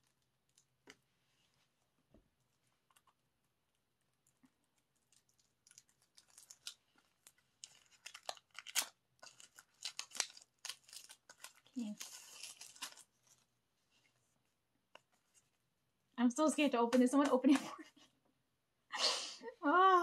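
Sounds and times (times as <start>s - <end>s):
plastic packaging crinkling and tearing: 4.7s - 13.5s.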